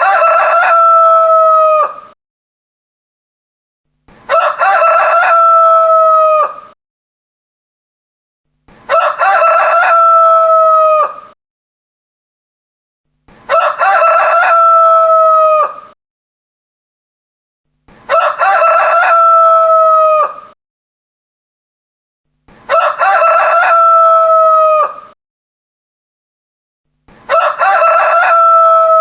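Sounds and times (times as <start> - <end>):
rooster crowing: 0.0 - 2.2, 4.3 - 6.8, 8.9 - 11.4, 13.5 - 16.0, 18.1 - 20.6, 22.7 - 25.2, 27.3 - 29.0.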